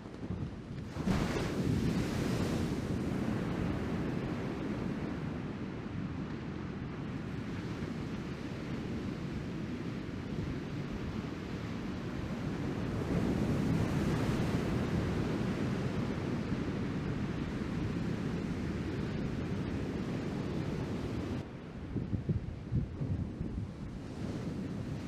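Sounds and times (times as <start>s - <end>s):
wind rumbling on microphone: 0.0s - 25.0s
surf breaking on beach: 1.0s - 4.1s.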